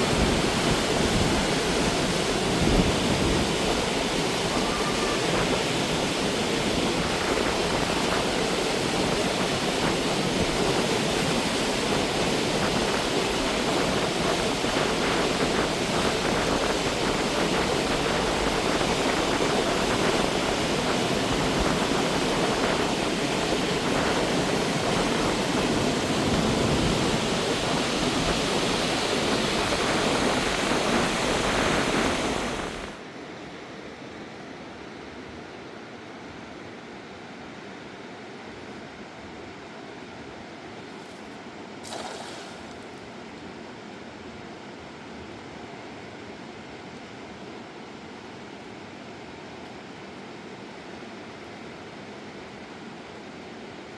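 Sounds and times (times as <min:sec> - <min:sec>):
river rushing: 0:00.0 - 0:33.1, 0:41.7 - 0:43.6
steady hiss: 0:00.0 - 0:33.4.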